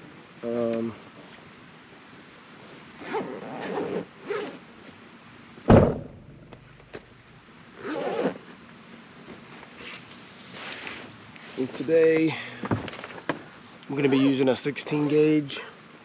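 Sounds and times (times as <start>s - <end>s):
loud thunk: 5.7s - 6.6s.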